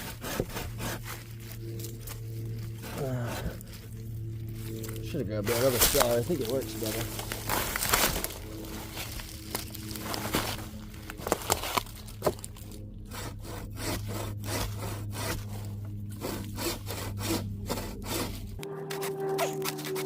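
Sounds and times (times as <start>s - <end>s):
hand saw cutting log: 0.0s - 9.2s, 11.2s - 20.0s.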